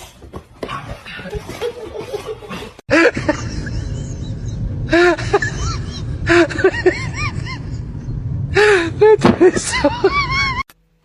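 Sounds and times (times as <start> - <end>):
steady low rumble: 2.9 - 10.6.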